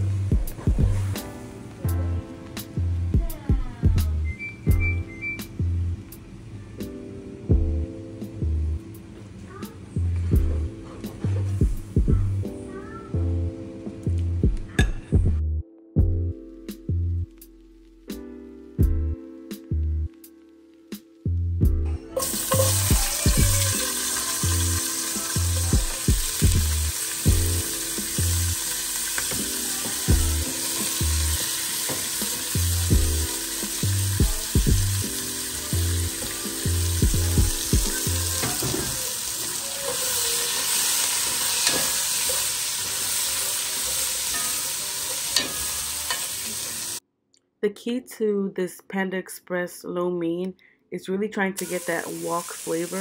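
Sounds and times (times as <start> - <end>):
background music with beat: 0.0 - 5.9, 6.8 - 8.9, 10.3 - 12.6, 13.2 - 39.1
vegetables sizzling in oil: 22.2 - 47.0, 51.6 - 53.0.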